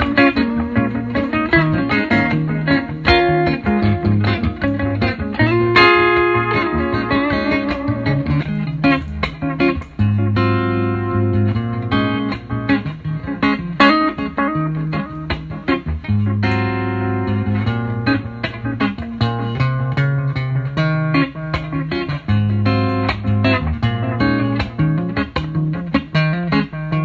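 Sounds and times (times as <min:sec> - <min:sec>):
electric guitar picking: 0:00.0 - 0:27.0
guitar chord ringing: 0:00.0 - 0:27.0.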